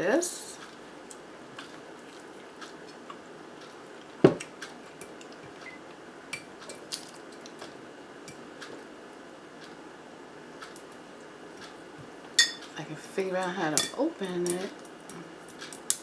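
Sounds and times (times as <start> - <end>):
tableware clicking and clinking: 12.4 - 12.7.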